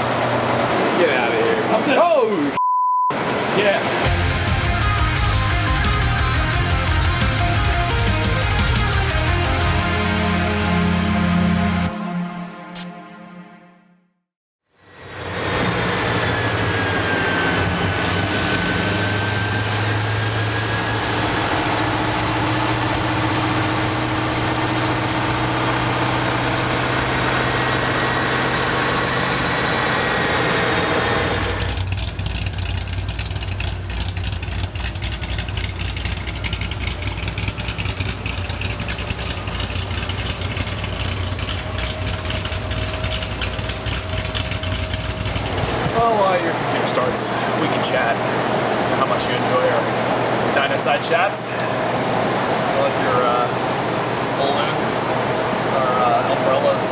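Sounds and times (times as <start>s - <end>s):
car engine idling: 15.2s - 56.9s.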